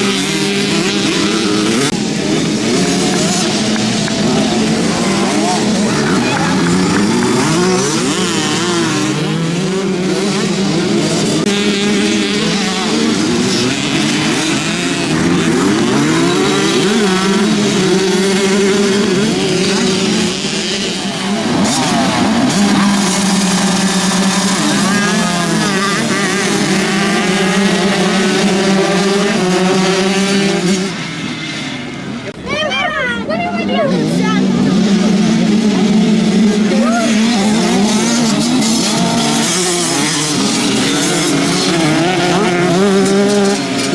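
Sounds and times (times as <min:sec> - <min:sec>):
motocross bike engines revving: 0:00.0 - 0:43.9.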